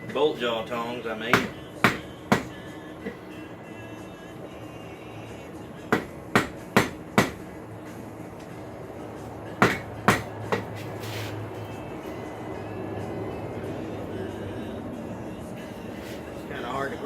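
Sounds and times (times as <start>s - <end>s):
hammer striking metal on anvil: 1.3s - 2.6s, 5.9s - 7.4s, 9.6s - 10.7s.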